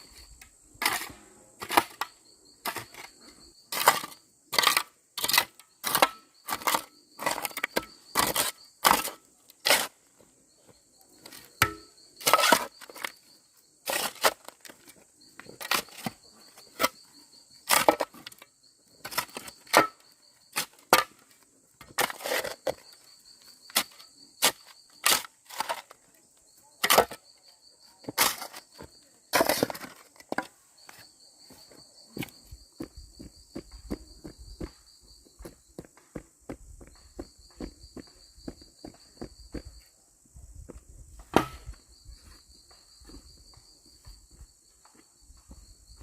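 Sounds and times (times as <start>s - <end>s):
high pulsing insect trill: 29.9s - 46.0s.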